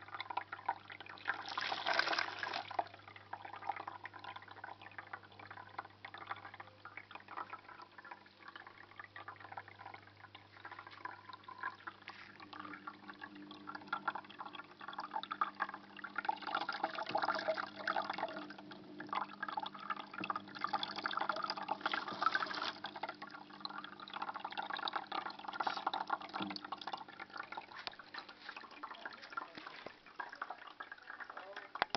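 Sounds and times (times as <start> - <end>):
low steady hum: 0.0 - 31.9
water trickling down small waterfall: 0.0 - 31.9.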